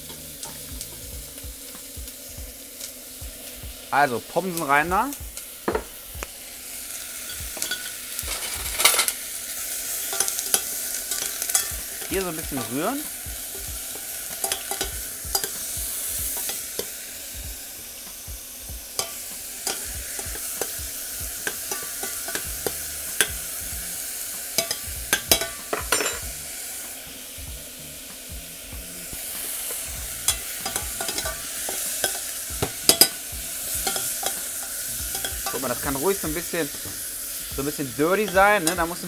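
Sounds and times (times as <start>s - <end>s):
fries sizzling in hot fat: 0.0s - 39.0s
spoon stirring in a steel pot: 7.2s - 17.0s, 19.0s - 23.6s, 24.5s - 26.2s, 29.4s - 37.1s, 38.2s - 39.0s.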